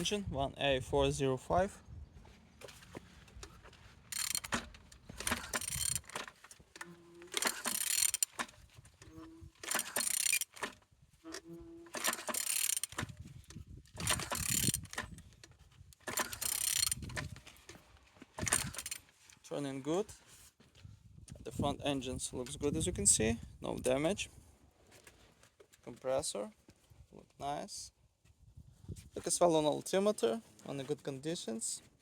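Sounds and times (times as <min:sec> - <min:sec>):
engine turned over by hand: 0:02.6 - 0:19.2
mechanical clicking and scraping: 0:02.6 - 0:19.2.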